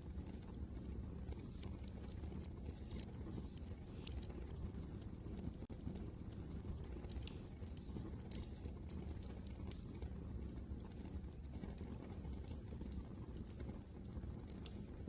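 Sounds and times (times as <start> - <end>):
low rumble of wind: 0.0 - 15.0
wood fire crackling: 0.0 - 15.0.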